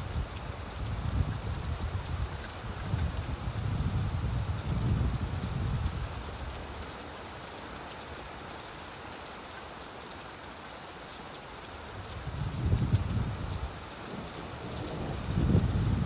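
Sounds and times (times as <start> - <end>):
rain hiss: 0.0 - 16.0
low rumble of thunder: 12.2 - 16.0.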